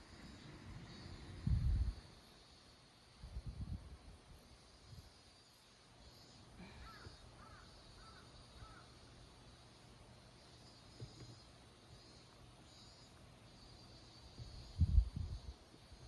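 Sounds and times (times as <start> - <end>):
faint insect hiss: 0.0 - 16.0
bird calling faintly: 6.6 - 9.0.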